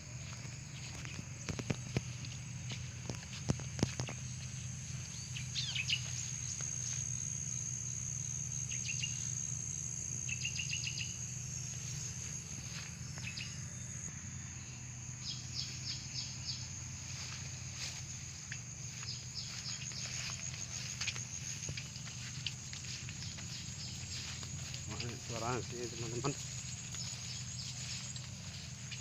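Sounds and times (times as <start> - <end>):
high-pitched insect drone: 0.0 - 29.0
small birds chirping: 0.1 - 7.2, 8.5 - 9.5, 10.2 - 29.0
low hum: 11.1 - 29.0.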